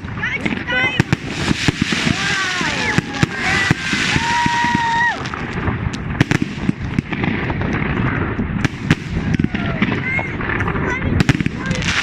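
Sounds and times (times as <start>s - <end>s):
fireworks cracking and popping: 0.0s - 12.0s
high shout: 2.0s - 5.3s.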